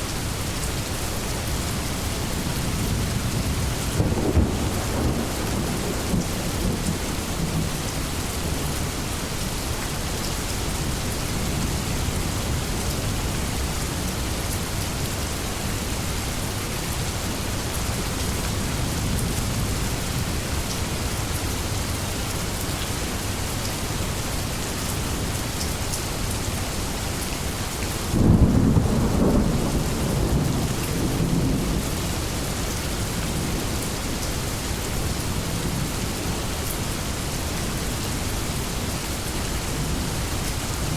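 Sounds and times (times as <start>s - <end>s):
heavy rain falling on leaves: 0.0s - 40.9s
thunder crack and rumble: 3.0s - 7.9s, 28.2s - 32.2s.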